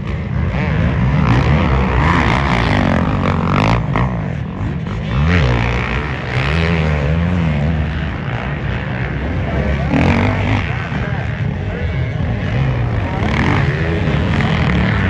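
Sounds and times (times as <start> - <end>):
motocross engines revving: 0.0 - 15.0.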